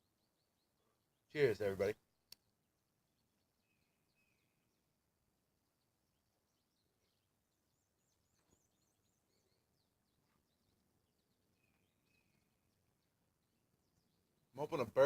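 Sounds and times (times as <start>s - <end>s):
faint songbirds chirping: 0.0s - 15.0s
faint click: 2.3s - 2.5s.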